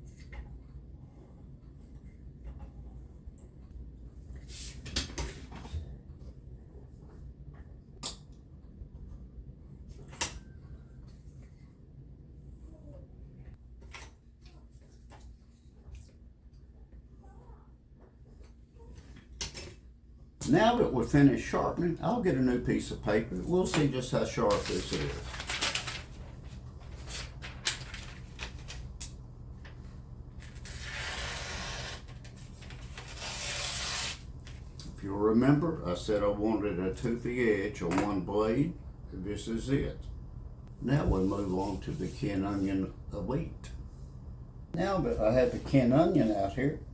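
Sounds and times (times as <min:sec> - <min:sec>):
paper crackling: 0:23.9 - 0:34.6
knife slicing paper: 0:32.9 - 0:34.2.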